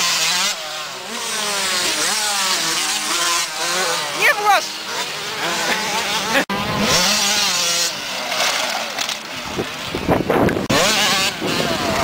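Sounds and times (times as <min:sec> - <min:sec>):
motocross motorcycle engines revving: 0:00.0 - 0:12.0
wind noise: 0:09.4 - 0:12.0.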